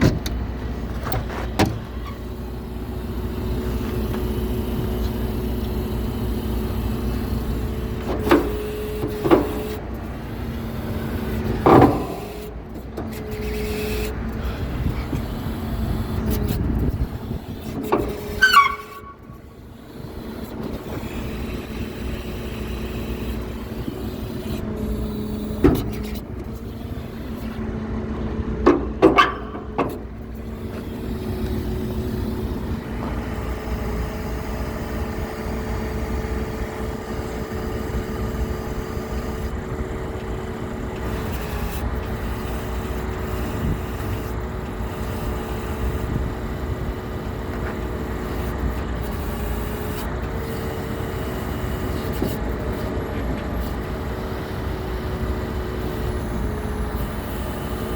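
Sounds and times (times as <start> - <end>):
diesel truck engine running: 0.0 - 57.9
short falling squeal: 18.3 - 19.4.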